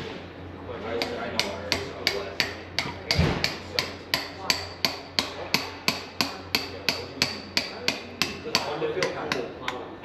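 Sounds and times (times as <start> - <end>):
hammer striking metal: 1.0 - 9.8
heavy thud: 3.1 - 3.6.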